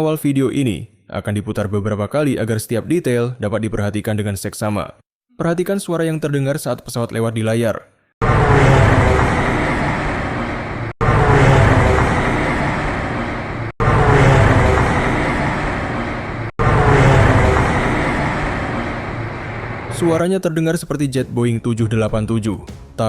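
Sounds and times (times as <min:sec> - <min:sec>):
airliner whirring drone: 0:08.2 - 0:20.1.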